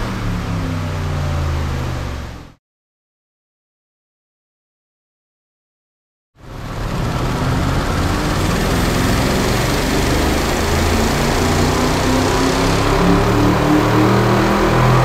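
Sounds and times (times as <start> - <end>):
car engine revving under load: 0.0 - 2.6, 6.5 - 15.0.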